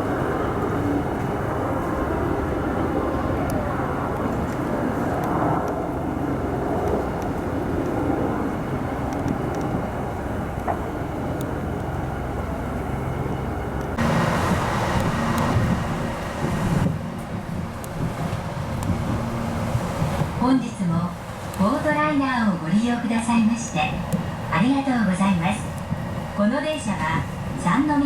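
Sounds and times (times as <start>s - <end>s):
vehicle rumbling: 0.0s - 20.6s.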